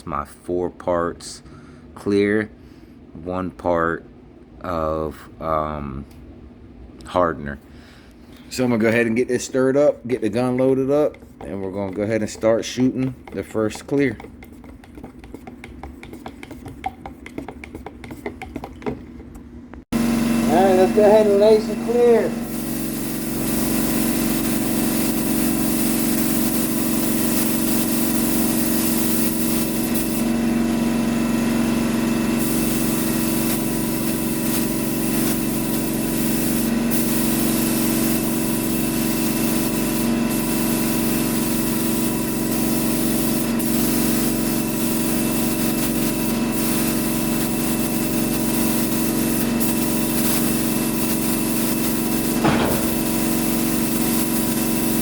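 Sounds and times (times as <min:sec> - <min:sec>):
motor hum: 0:18.7 - 0:55.0
spray gun hissing: 0:20.5 - 0:55.0.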